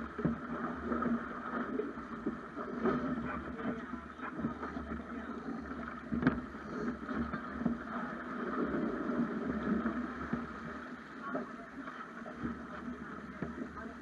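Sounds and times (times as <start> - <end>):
water slapping along a hull: 0.0 - 14.0.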